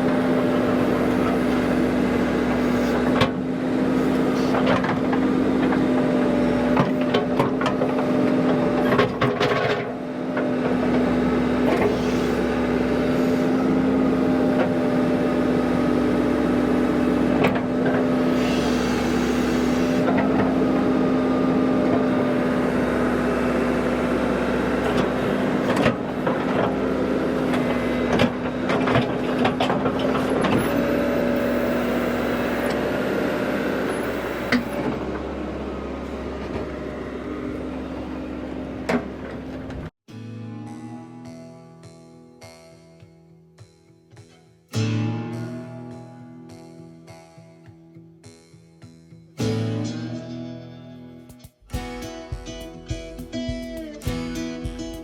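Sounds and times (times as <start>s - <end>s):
heavy machine engine running: 0.0s - 40.0s
clanks and knocks: 4.5s - 11.1s, 27.5s - 30.7s.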